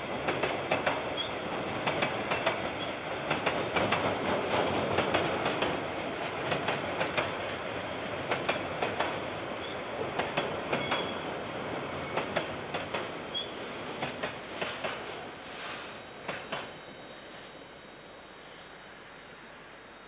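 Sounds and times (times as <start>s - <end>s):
train wagons rumbling: 0.0s - 16.8s
wheels clacking over rail joints: 0.2s - 7.5s, 8.3s - 11.2s.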